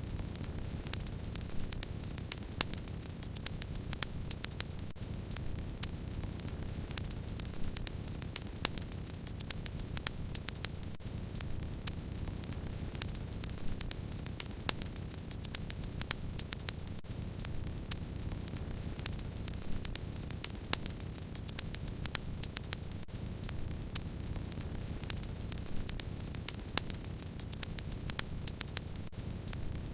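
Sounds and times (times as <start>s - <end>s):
wood fire crackling: 0.0s - 29.9s.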